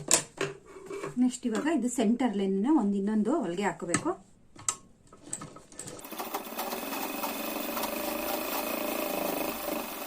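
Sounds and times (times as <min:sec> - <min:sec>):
sewing machine stitching: 0:05.9 - 0:10.0.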